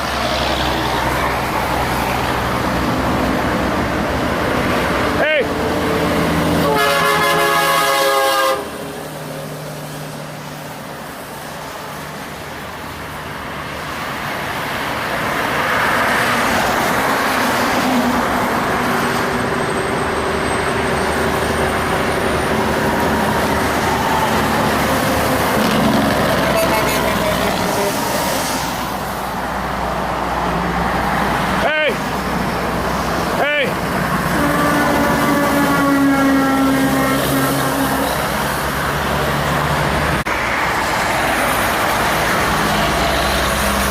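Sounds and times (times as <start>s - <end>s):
heavy trucks passing: 0.0s - 43.9s
truck horn: 6.5s - 8.9s, 24.9s - 28.3s, 34.1s - 38.5s.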